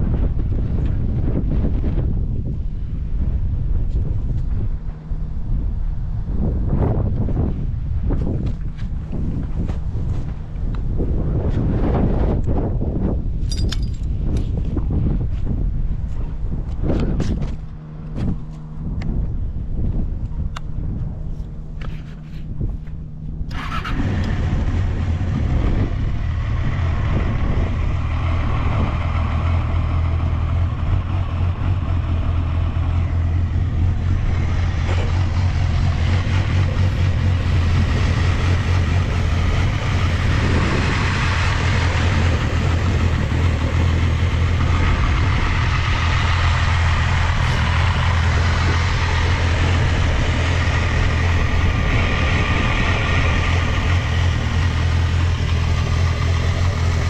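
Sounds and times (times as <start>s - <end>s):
motorcycle engine idling: 22.6s - 57.0s.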